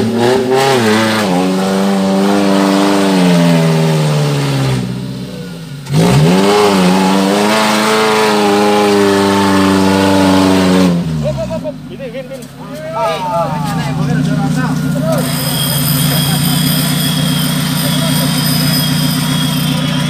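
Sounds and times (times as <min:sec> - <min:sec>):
engine revving under load: 0:00.0 - 0:11.7.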